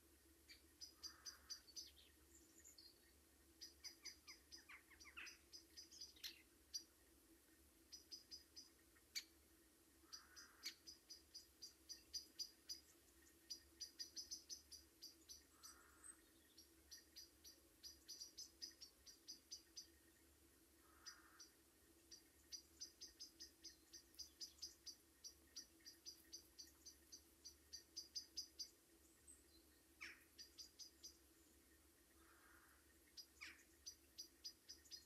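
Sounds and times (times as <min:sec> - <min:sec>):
faint low hum: 0:00.0 - 0:35.0
small birds chirping: 0:00.0 - 0:35.0.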